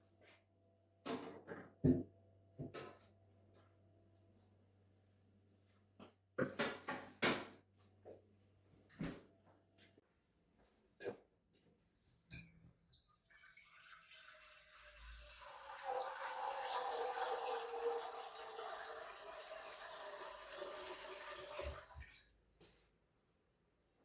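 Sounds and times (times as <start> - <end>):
water running: 13.2 - 22.3.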